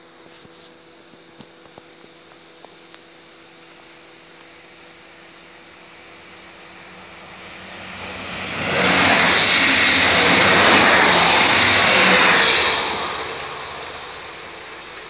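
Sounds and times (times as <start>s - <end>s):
passenger train passing: 3.4s - 15.0s.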